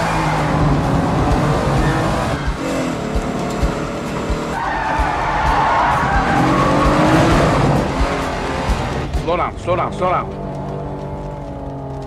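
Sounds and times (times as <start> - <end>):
car engine revving hard: 0.0 - 9.2
tires squealing: 0.0 - 12.0.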